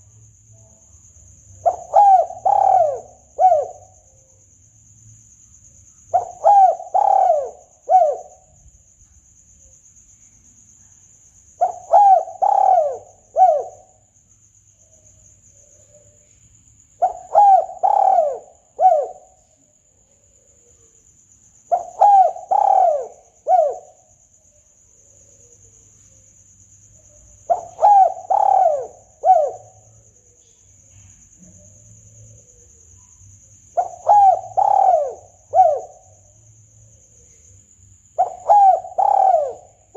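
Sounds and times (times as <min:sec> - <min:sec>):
steady high-pitched hiss: 0:00.0 - 0:39.9
dove cooing: 0:01.6 - 0:04.0, 0:06.1 - 0:08.4, 0:11.6 - 0:14.0, 0:17.0 - 0:19.4, 0:21.7 - 0:24.0, 0:27.4 - 0:29.9, 0:33.8 - 0:36.3, 0:38.2 - 0:39.9.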